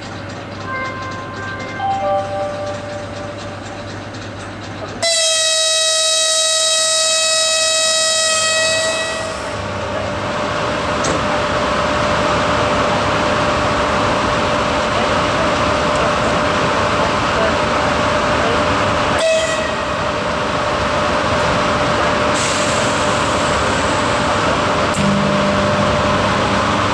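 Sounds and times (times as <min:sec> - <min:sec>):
train pulling away rumble: 0:00.0 - 0:26.9
locomotive horn blast: 0:00.7 - 0:03.6, 0:05.0 - 0:09.6, 0:19.2 - 0:20.0.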